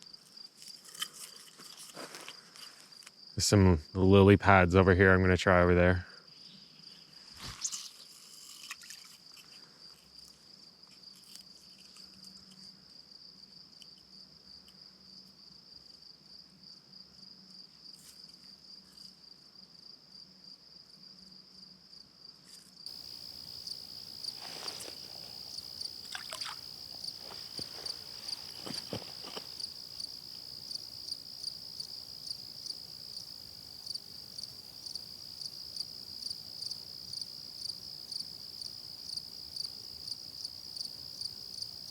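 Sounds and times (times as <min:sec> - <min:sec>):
crickets trilling: 0:22.8 - 0:41.9
sharp knocks or splashes: 0:26.0 - 0:26.6.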